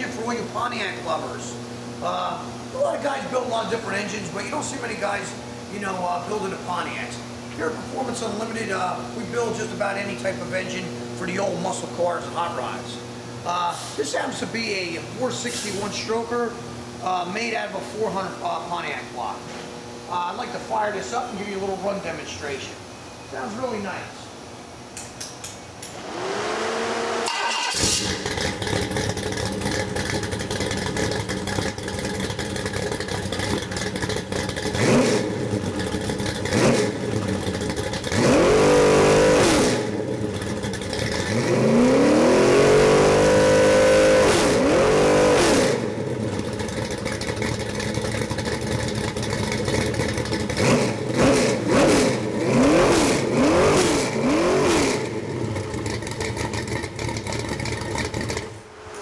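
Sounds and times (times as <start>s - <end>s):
engine starting and revving: 25.9s - 59.0s.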